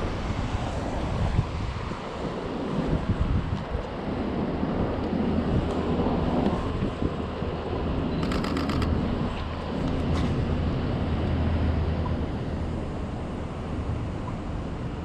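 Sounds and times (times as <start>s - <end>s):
city traffic rumble: 0.0s - 15.0s
wind: 0.0s - 15.0s
camera shutter clicks: 8.2s - 9.0s.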